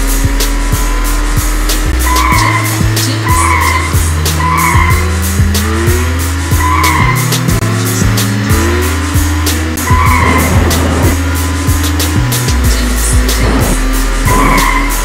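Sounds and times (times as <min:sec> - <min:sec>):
action music with bass and beat: 0:00.0 - 0:15.0
car engine: 0:00.0 - 0:15.0
tyre squeals: 0:02.0 - 0:05.2, 0:06.5 - 0:07.5, 0:09.8 - 0:11.2, 0:14.2 - 0:15.0.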